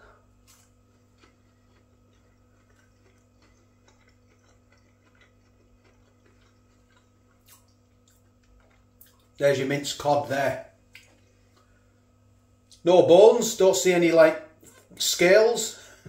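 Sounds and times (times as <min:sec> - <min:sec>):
low room hum: 0:00.0 - 0:16.0
soft chewing clicks: 0:00.4 - 0:09.4, 0:10.9 - 0:11.9.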